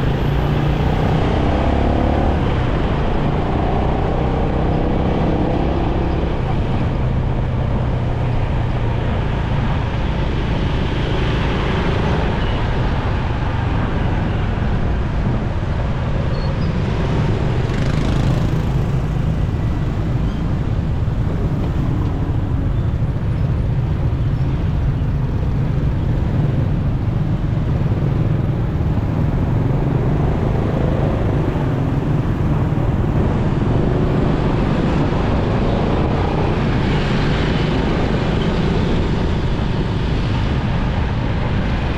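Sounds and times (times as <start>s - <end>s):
wind and road noise: 0.0s - 41.9s
motorcycle engine running: 17.5s - 34.2s.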